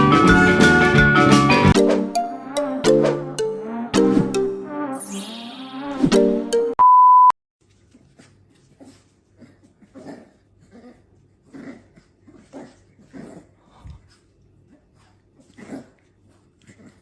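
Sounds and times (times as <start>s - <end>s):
music: 0.0s - 6.8s
loud steady beep: 6.8s - 7.3s.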